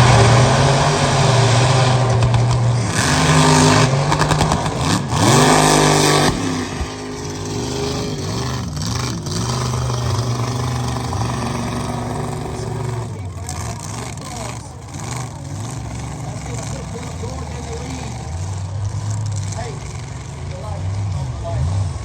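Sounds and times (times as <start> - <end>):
truck engine revving hard: 0.0 - 22.0.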